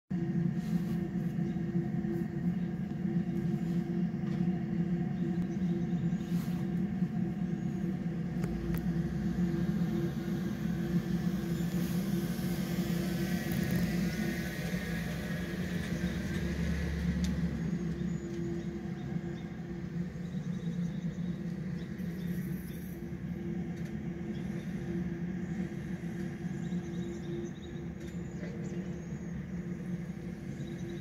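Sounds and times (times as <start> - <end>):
diesel locomotive rumbling: 0.1 - 31.0.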